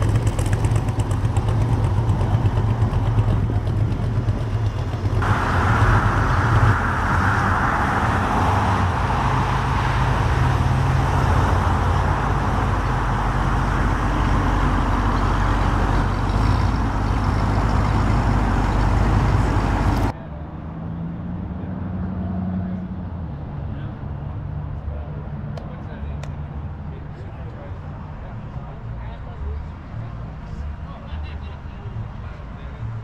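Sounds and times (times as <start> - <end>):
car engine low hum: 0.0 - 28.9
loud rushing noise: 5.1 - 20.1.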